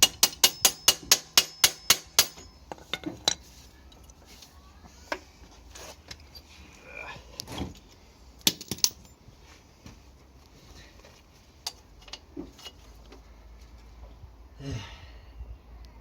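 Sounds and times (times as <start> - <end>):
metal tools clinking: 0.0 - 4.1.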